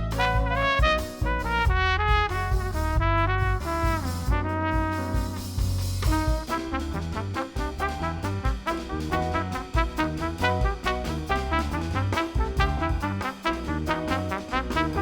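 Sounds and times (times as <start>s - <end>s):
double bass: 0.0s - 15.0s
drums: 0.0s - 15.0s
piano: 0.0s - 15.0s
trumpet melody: 0.0s - 15.0s.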